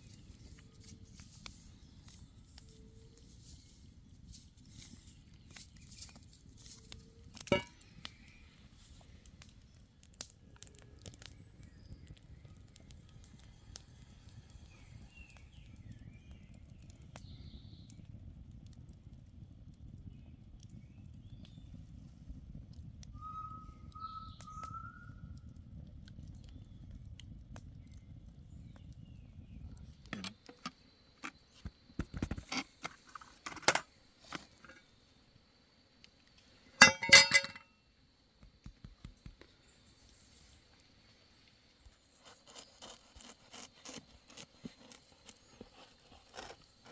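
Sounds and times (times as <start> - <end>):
clicks of objects being handled: 4.8 - 7.8, 30.0 - 34.9, 36.8 - 37.6
sharp clinks: 36.8 - 37.6.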